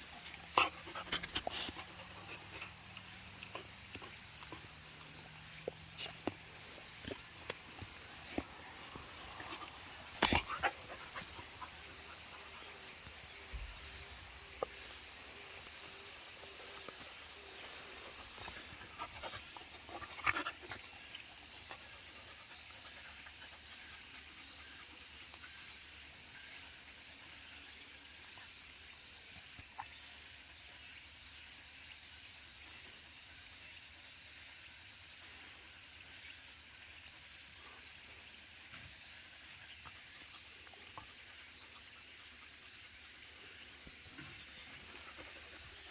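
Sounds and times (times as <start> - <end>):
dog panting: 0.0 - 25.5, 44.3 - 45.9.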